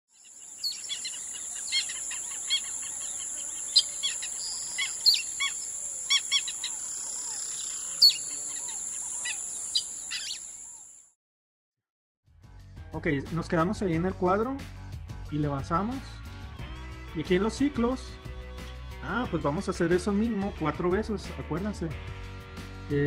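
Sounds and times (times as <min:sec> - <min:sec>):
birds chirping: 0:00.1 - 0:11.0.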